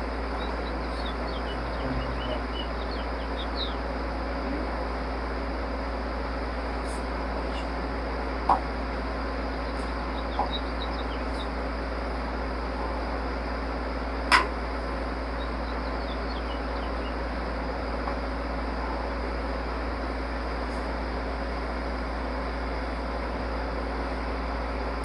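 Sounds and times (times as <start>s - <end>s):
low hum of machinery: 0.0s - 25.0s
faint high chirps: 0.2s - 3.9s.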